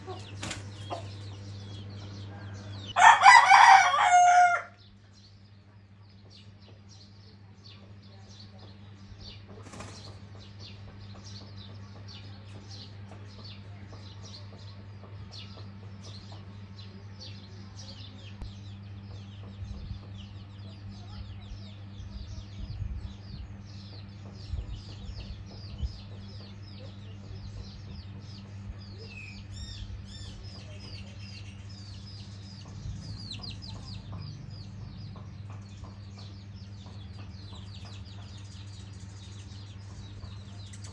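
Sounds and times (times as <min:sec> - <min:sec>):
chickens clucking: 0:00.0 - 0:04.6, 0:23.8 - 0:40.9
chicks peeping: 0:00.0 - 0:04.9, 0:07.6 - 0:40.9
steady low hum: 0:00.0 - 0:40.9
soft low knocks: 0:32.6 - 0:38.3.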